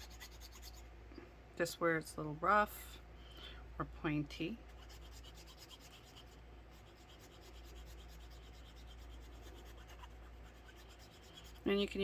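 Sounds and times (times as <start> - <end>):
metal file rubbing resin: 0.0 - 0.8, 4.7 - 12.0.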